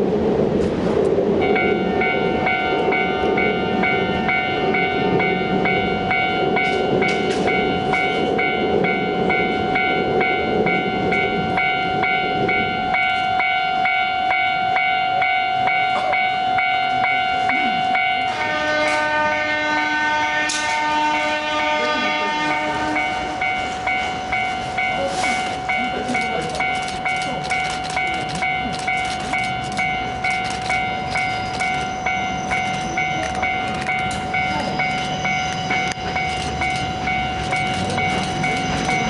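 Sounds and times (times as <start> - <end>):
passing train rumble: 0.0 - 39.0
level crossing alarm ringing: 1.4 - 39.0
sustained horn-like tone: 18.2 - 24.3.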